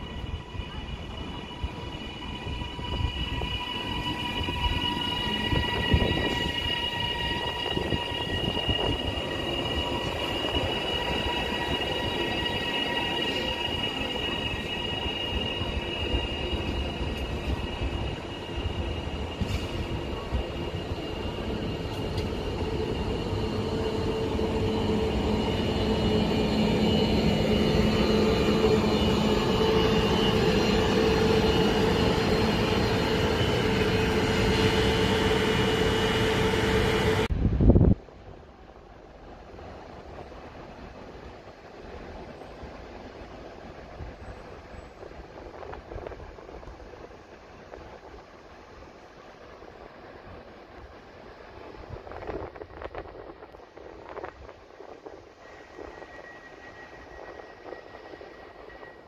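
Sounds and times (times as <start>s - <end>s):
train whine: 0.0s - 59.0s.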